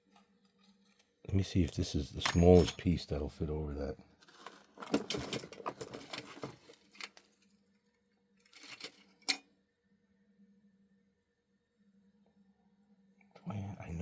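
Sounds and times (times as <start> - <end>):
small metal objects clinking: 1.8 - 3.0.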